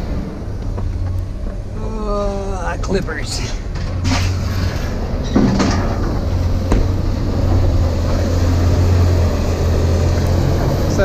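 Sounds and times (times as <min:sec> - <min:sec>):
vehicle engine and road noise: 0:00.0 - 0:11.0
sharp clunks and rattles: 0:02.9 - 0:09.0.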